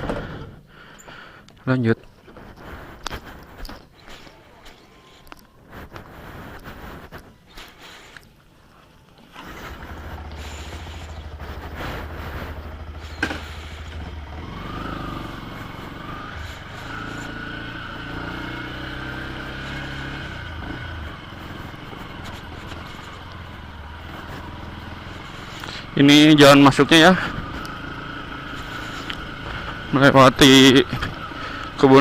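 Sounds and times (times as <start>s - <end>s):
motorcycle engine running: 8.8s - 32.0s.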